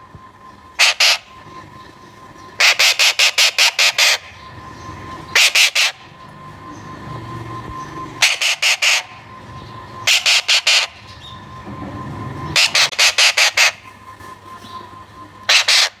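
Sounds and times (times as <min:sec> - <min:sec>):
faint steady hum: 0:00.0 - 0:16.0
parakeet screeching: 0:00.8 - 0:01.3, 0:02.6 - 0:04.4, 0:05.3 - 0:06.0, 0:08.2 - 0:09.2, 0:10.0 - 0:11.3, 0:12.5 - 0:13.9, 0:15.5 - 0:16.0.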